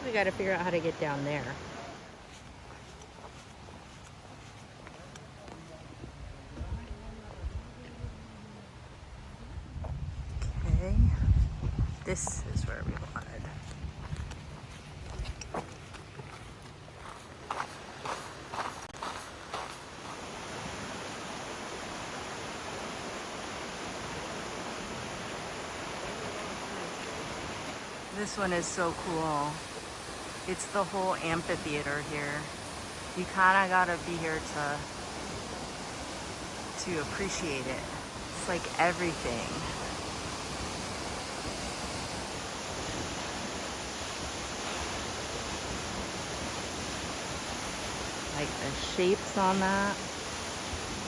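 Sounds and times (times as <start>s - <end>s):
waterfall rushing: 19.6s - 51.0s.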